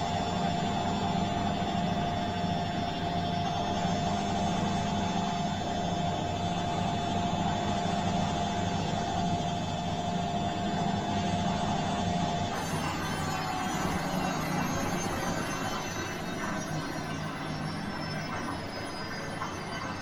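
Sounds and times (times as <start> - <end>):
washing machine running: 0.0 - 20.0
thin whine: 11.8 - 20.0.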